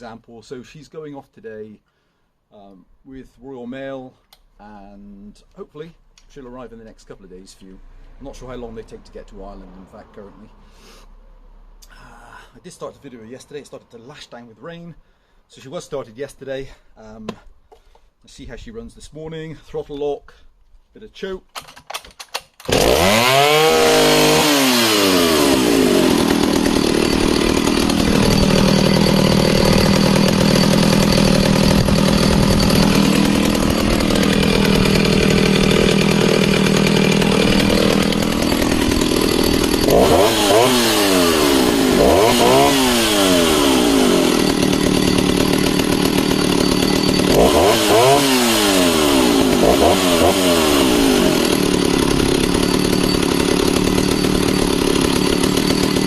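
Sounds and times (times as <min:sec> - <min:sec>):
chainsaw revving: 0:22.6 - 0:56.0
chainsaw idling: 0:22.7 - 0:56.0.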